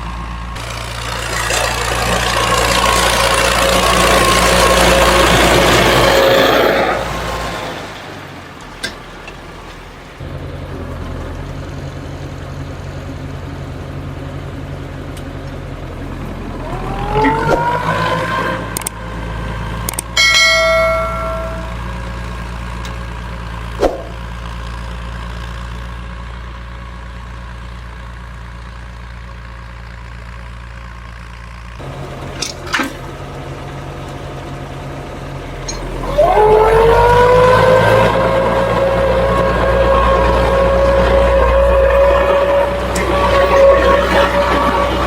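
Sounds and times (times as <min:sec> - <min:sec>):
engine idling and revving: 0:00.0 - 0:45.0
metallic clang: 0:20.2 - 0:22.0.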